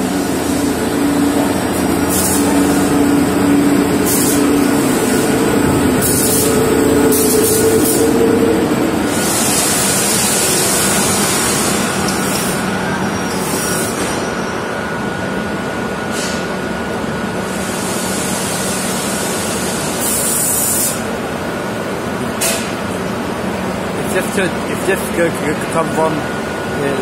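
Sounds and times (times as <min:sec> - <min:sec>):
train wheels rumbling on rail: 0:00.0 - 0:27.0
air hiss bursts: 0:02.0 - 0:03.0, 0:04.0 - 0:05.3, 0:06.0 - 0:08.2, 0:09.1 - 0:12.6, 0:17.6 - 0:21.0.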